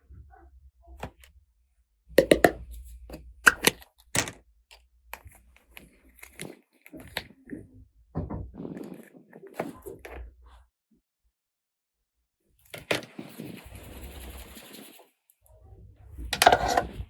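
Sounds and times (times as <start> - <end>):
plastic toy pieces clicking: 2.2 - 2.6, 3.5 - 4.4
plastic pieces knocking: 2.2 - 4.4, 16.4 - 17.0.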